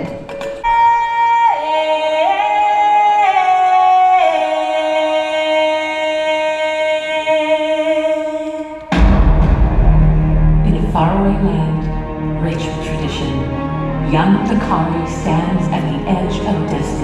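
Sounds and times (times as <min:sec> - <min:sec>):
woman singing long notes: 0:00.0 - 0:08.8.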